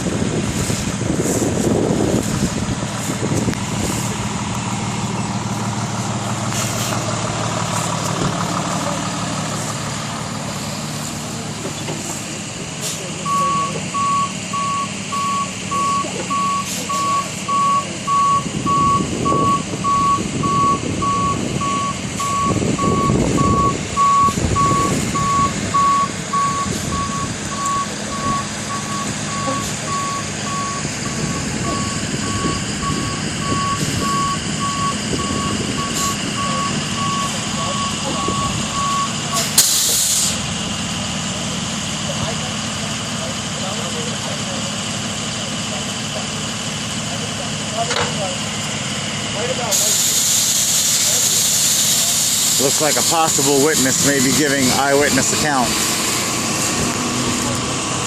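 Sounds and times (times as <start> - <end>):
diesel engine running: 0.0 - 58.0
reversing alarm beeps: 13.2 - 39.5.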